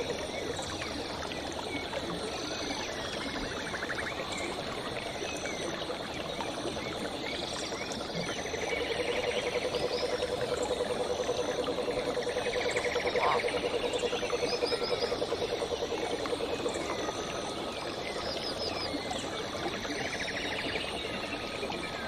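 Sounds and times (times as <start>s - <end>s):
frogs higher trills: 8.7s - 19.0s.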